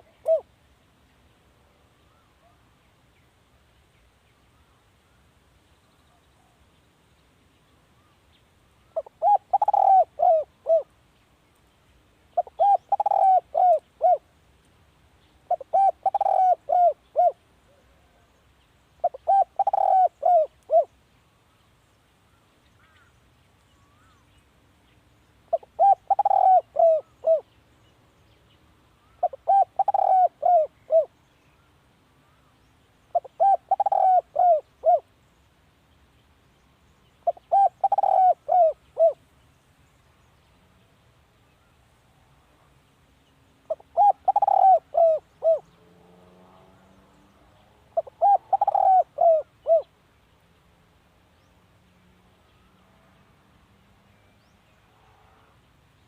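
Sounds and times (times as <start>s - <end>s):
dove cooing: 0.0s - 0.5s, 8.9s - 10.9s, 12.4s - 14.3s, 15.5s - 18.3s, 19.0s - 20.9s, 25.5s - 27.5s, 29.0s - 31.1s, 33.1s - 35.1s, 37.2s - 39.2s, 43.7s - 49.9s.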